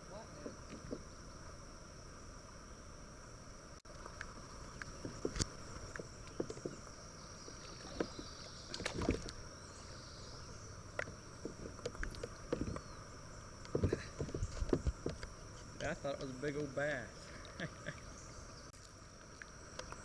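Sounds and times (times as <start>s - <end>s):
small water splashes: 7.5s - 9.5s.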